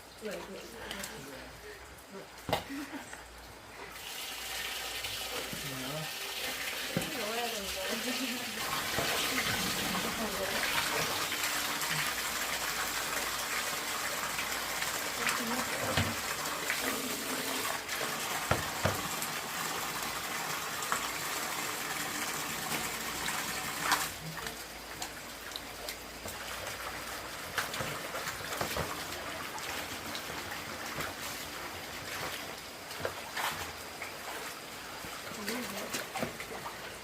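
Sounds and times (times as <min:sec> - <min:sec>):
small clicks and splashes: 0:00.0 - 0:03.6, 0:22.7 - 0:37.0
running water: 0:00.0 - 0:37.0.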